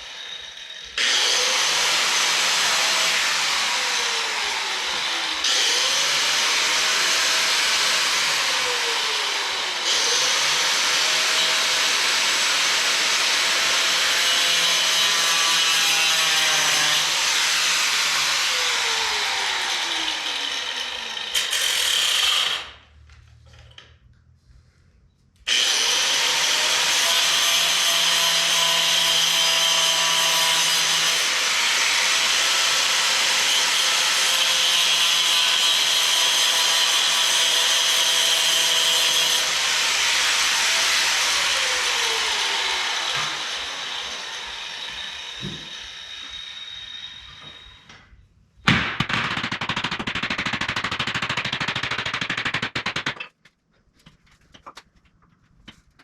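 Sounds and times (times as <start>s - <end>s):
power tool working on wood: 0.0s - 22.7s.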